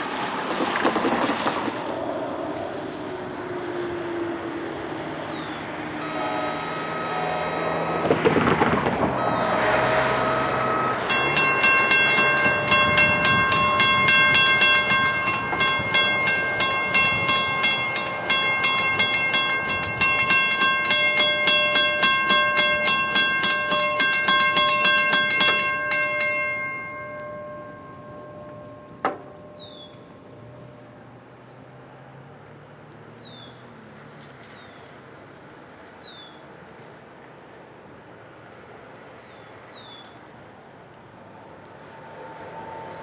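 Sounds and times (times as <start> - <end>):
passing train rumble: 0.0 - 34.2, 40.4 - 43.0
crossing warning bell ringing: 6.0 - 31.2.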